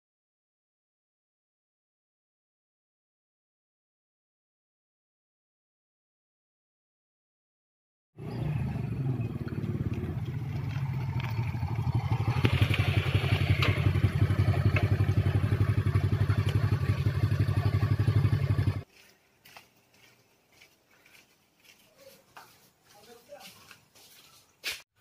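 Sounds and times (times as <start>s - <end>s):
small motorcycle engine putter: 9.4s - 15.4s.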